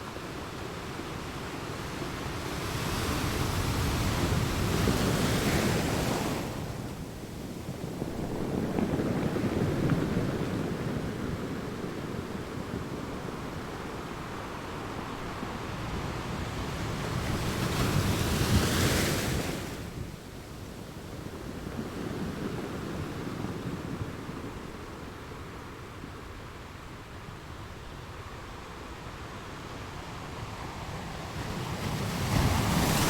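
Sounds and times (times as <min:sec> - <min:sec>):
ocean waves breaking: 0:31.0 - 0:33.0.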